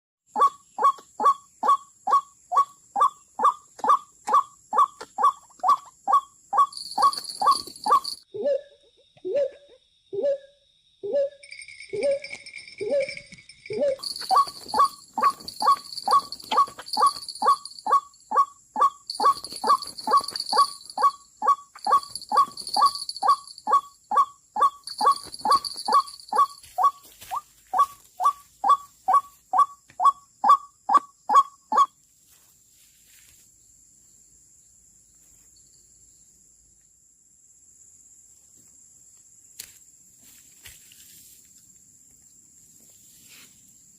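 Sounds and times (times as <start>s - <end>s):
waterhen calling: 14.0s - 30.6s.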